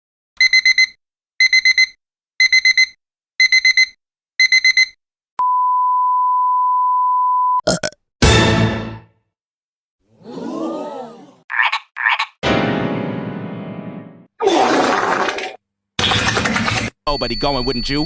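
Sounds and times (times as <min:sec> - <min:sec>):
digital alarm clock beeping: 0:00.4 - 0:05.0, 0:17.1 - 0:18.0
steady censor bleep: 0:00.4 - 0:07.6, 0:17.1 - 0:18.0.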